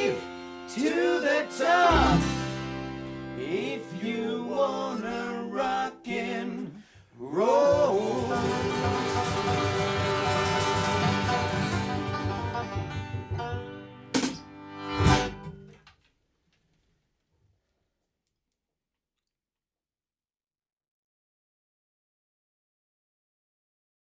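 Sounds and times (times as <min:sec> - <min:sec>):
person singing: 0:00.0 - 0:02.5, 0:03.4 - 0:09.8
band playing rock song: 0:07.8 - 0:14.4.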